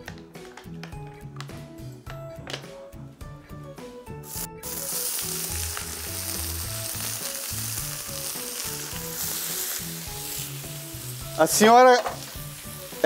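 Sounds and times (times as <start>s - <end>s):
soft background music: 0.0s - 13.0s
chicken sizzling on griddle: 4.3s - 13.0s.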